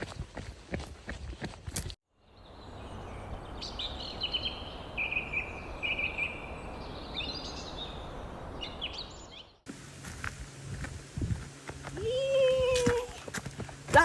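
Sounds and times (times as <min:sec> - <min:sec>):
steady outdoor hiss: 0:02.1 - 0:14.0
birds chirping and singing: 0:02.2 - 0:09.6.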